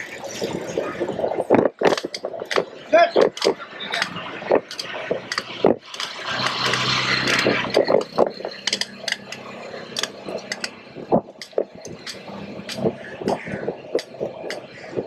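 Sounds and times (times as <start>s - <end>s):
knocks and clatter: 1.1s - 15.0s
vehicle engine passing: 3.5s - 15.0s.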